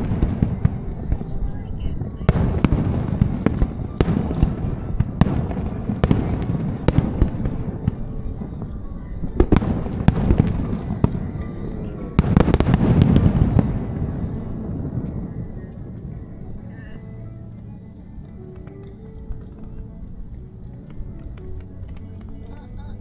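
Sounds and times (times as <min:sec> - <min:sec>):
fireworks bursting with sharp bangs: 0:00.0 - 0:16.6.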